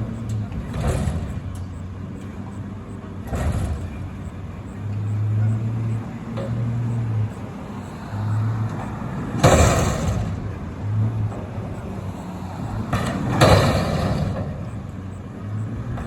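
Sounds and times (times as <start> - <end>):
diesel engine running: 0.0 - 16.0
dumpster crashing into truck: 0.6 - 1.6, 3.3 - 4.3, 9.4 - 11.0, 12.8 - 14.8.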